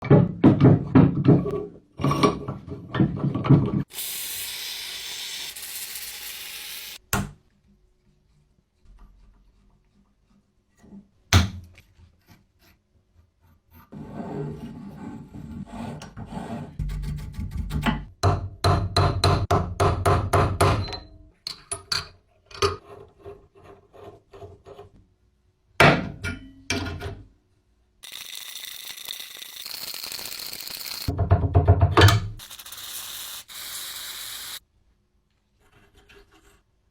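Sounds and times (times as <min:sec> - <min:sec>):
steady hissing: 0:03.9 - 0:07.0, 0:28.0 - 0:31.1, 0:32.4 - 0:34.6
knocks on metal vise: 0:17.7 - 0:21.0.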